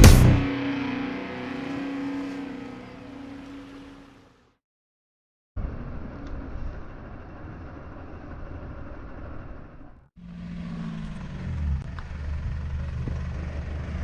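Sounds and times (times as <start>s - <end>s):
vehicle engine rumbling: 0.0s - 4.4s, 5.6s - 14.0s
engine running steadily: 0.0s - 4.5s, 10.2s - 14.0s.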